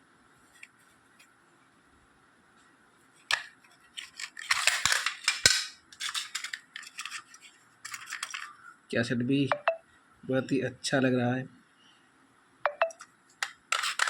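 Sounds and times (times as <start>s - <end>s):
plastic cassette case clicking: 13.4s - 14.0s.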